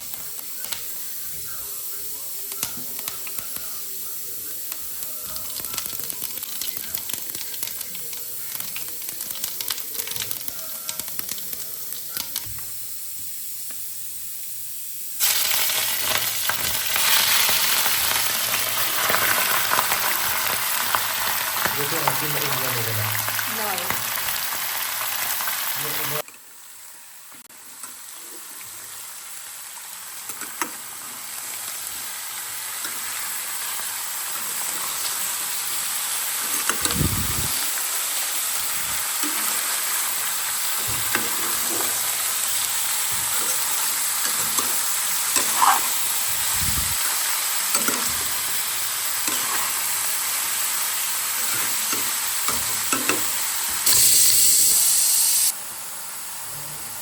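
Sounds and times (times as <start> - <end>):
meat sizzling in a pan: 0.0 - 57.0
spoon knocking and scraping pan: 44.2 - 46.0.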